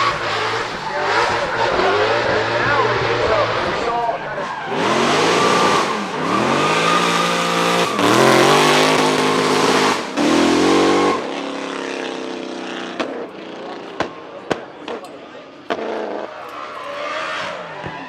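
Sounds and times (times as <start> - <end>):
tyres squealing: 0.0 - 11.6
car engine revving hard: 0.0 - 18.0.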